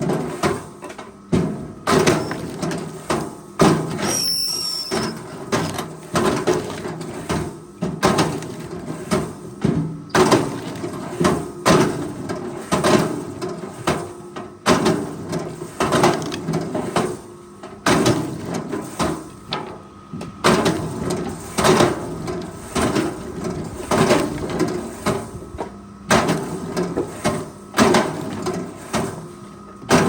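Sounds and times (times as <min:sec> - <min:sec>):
low machine hum: 0:13.0 - 0:30.0.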